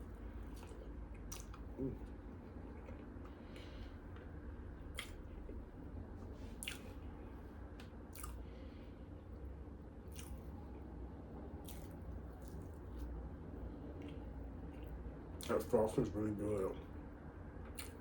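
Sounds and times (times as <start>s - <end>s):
chewing soft cake: 0.0s - 17.0s, 17.6s - 18.0s
wet mouth smacks: 0.6s - 1.7s, 4.9s - 5.2s, 6.6s - 6.9s, 7.8s - 8.4s, 10.1s - 10.4s, 17.7s - 18.0s.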